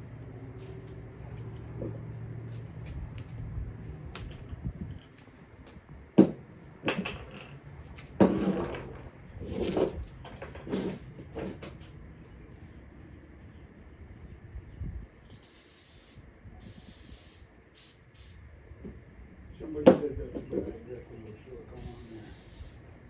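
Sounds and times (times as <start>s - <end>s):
tools and parts clattering: 6.2s - 11.9s.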